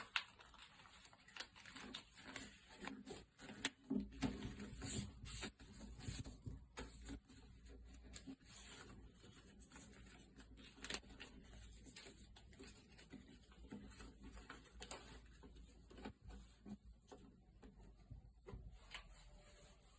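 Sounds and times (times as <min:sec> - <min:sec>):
paper rustling and crinkling: 0:00.0 - 0:19.9.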